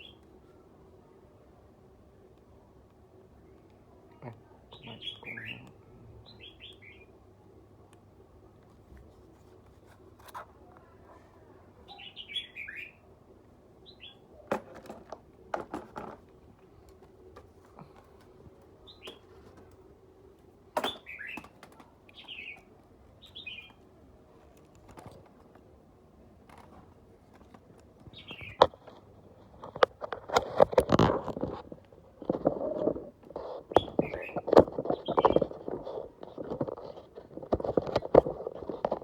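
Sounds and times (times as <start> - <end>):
small birds chirping: 0.0 - 0.2, 3.5 - 7.2, 11.8 - 13.1, 13.8 - 14.4, 17.7 - 19.7, 20.7 - 24.0, 28.0 - 29.0, 32.3 - 39.0
knocking and rattling: 14.5 - 16.3.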